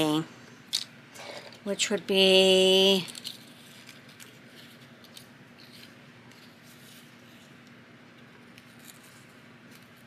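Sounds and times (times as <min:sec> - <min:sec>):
low electrical hum: 0:00.0 - 0:10.0
paper rustling and folding: 0:03.1 - 0:10.0.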